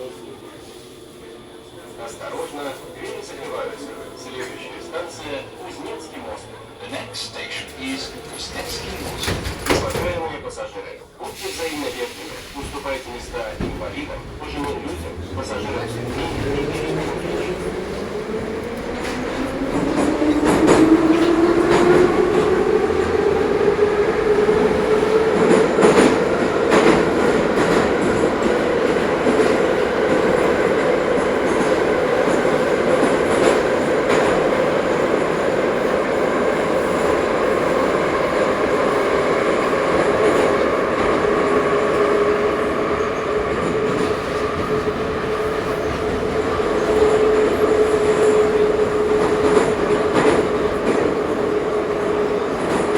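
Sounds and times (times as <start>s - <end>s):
wheels rumbling on track: 11.4s - 36.0s.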